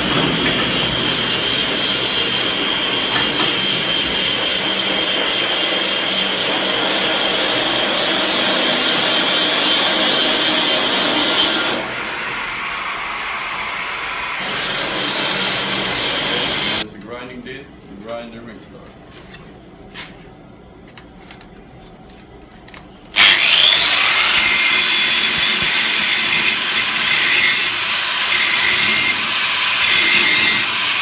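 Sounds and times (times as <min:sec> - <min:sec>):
angle grinder grinding metal: 0:00.0 - 0:16.8, 0:23.2 - 0:31.0.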